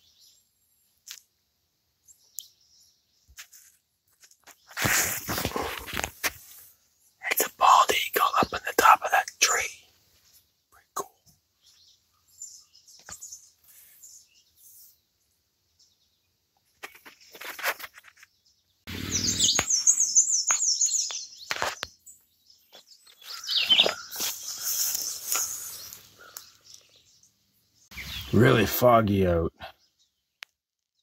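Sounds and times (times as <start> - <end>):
faint high bird chirps: 0.0 - 1.4, 6.8 - 28.7
loud rapid birdsong: 4.5 - 30.3.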